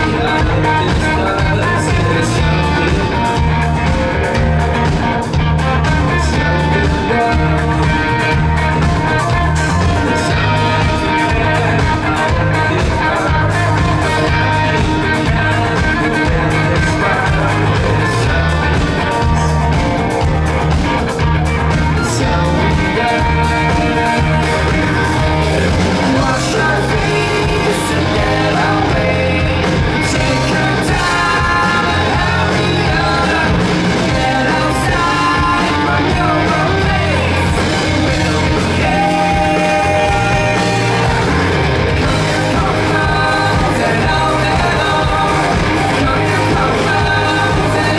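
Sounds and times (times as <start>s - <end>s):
bass guitar: 0.0s - 47.9s
drum kit beat: 0.0s - 47.9s
electric guitar: 0.0s - 47.9s
person singing lead vocal: 0.0s - 47.9s.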